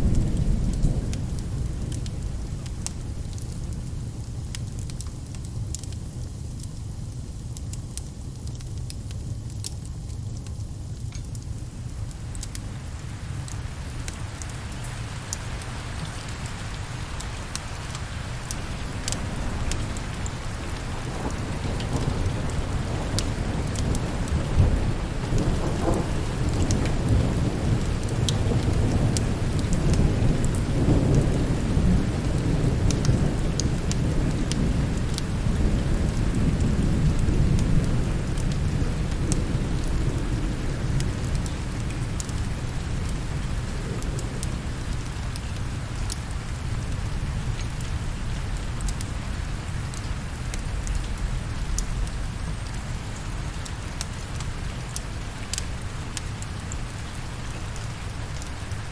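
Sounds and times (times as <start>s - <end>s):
rolling thunder rumble: 0.0s - 4.2s, 14.2s - 49.6s
steady rain: 0.0s - 58.9s.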